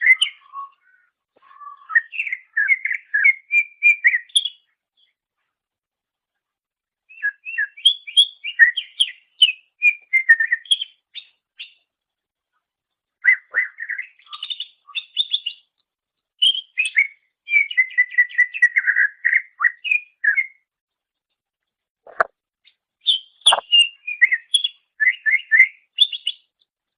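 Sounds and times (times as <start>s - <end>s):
bird singing chirps and whistles: 0.0s - 5.1s, 7.1s - 11.8s, 13.2s - 15.7s, 16.4s - 20.7s, 23.0s - 26.5s.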